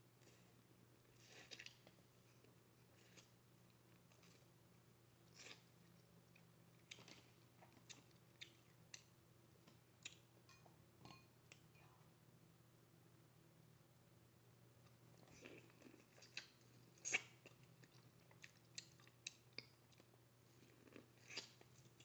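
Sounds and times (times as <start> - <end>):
faint low hum: 0.0 - 22.0
chewing and biting: 5.3 - 9.1, 15.2 - 22.0.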